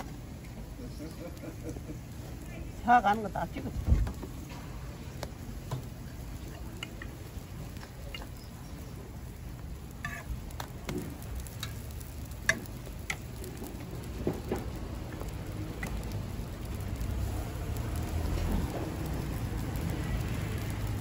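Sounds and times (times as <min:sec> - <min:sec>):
food sizzling on a griddle: 0:00.0 - 0:21.0
metal tongs clinking on griddle: 0:10.0 - 0:16.0.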